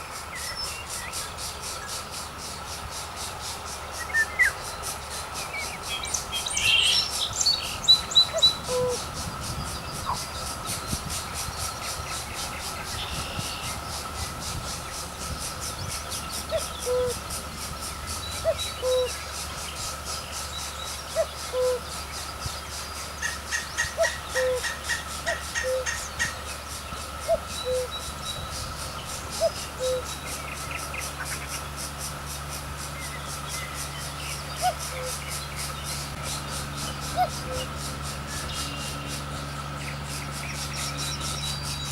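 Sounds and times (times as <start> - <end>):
bird hooting: 8.0 - 9.4, 12.1 - 19.5, 20.4 - 22.4, 23.1 - 31.4, 34.3 - 39.4.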